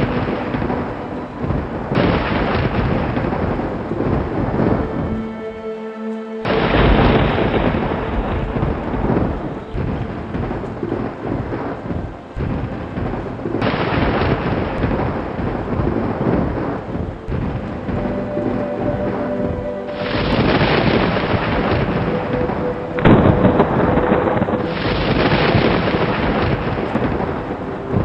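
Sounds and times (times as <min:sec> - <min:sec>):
steady rain: 0:00.0 - 0:04.0, 0:06.5 - 0:28.0
thunder rolling: 0:00.0 - 0:04.0
soft sustained music tones: 0:00.0 - 0:28.0.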